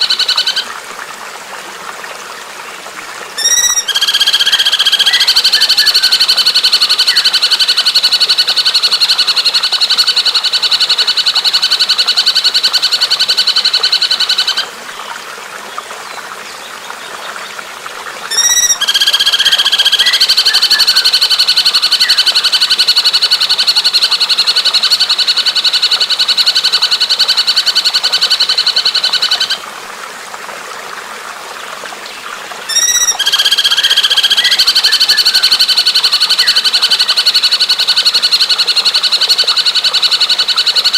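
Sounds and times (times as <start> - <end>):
bird song fast trills: 3.4 - 6.0, 18.3 - 21.0, 32.7 - 35.4.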